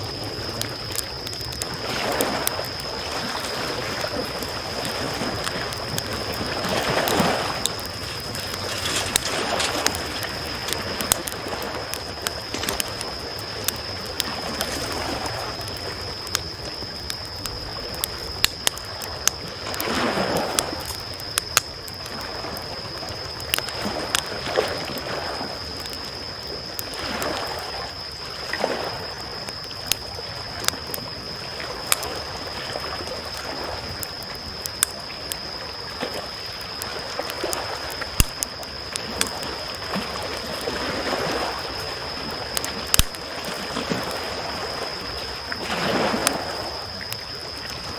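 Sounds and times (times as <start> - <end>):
campfire crackling: 0.0 - 47.9
small waves lapping: 1.8 - 13.4.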